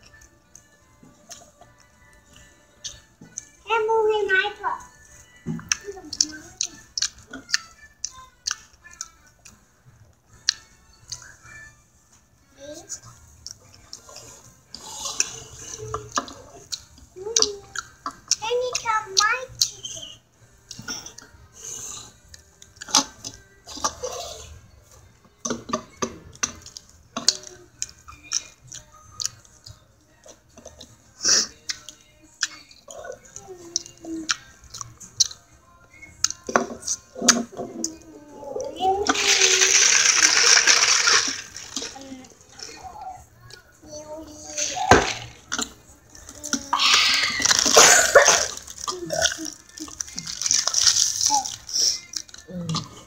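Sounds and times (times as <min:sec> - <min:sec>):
chewing with wet mouth clicks: 0:05.6 - 0:09.6, 0:10.4 - 0:11.5, 0:26.3 - 0:30.9, 0:31.6 - 0:38.0
wet mouth chewing sounds: 0:05.6 - 0:09.6, 0:33.8 - 0:35.4, 0:46.5 - 0:53.0.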